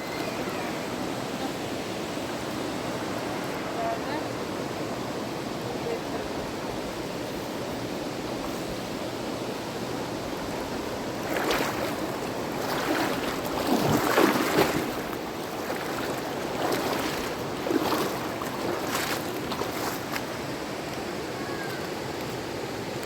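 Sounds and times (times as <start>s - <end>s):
river water rushing: 0.0s - 23.0s
water splashing: 10.3s - 21.1s.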